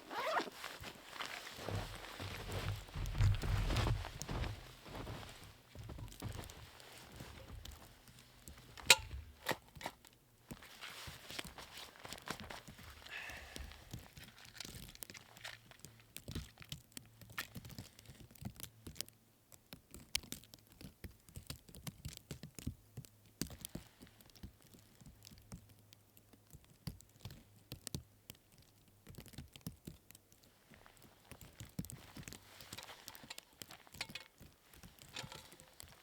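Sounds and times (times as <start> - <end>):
footsteps crunching through snow: 0.0 - 8.8.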